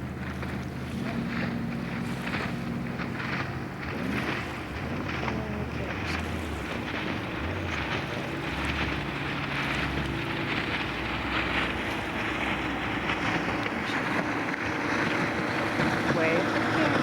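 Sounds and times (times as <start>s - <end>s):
boat engine running: 0.0s - 17.0s
wind buffeting microphone: 0.0s - 17.0s.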